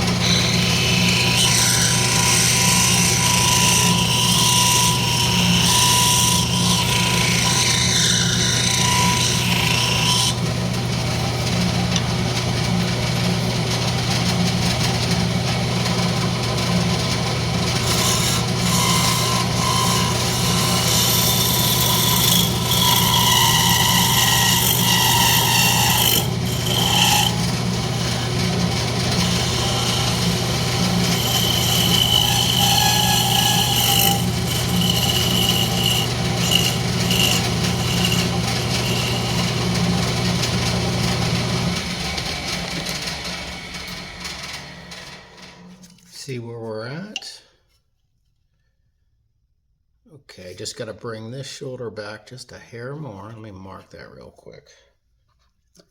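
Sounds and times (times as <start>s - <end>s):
turning tool scraping wood: 0.0s - 43.3s
wood lathe humming: 0.0s - 46.0s.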